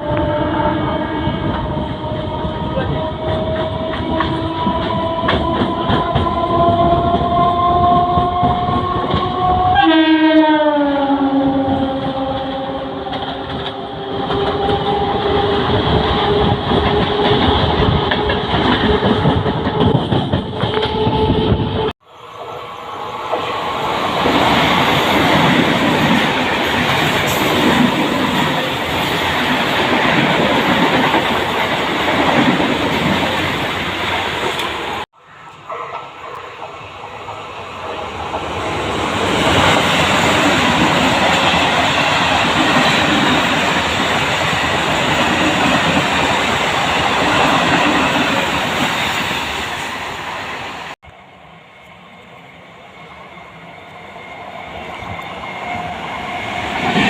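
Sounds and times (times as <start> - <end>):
train horn: 0.0 - 24.0
train wheels clattering on rail: 1.5 - 9.8, 12.5 - 21.9.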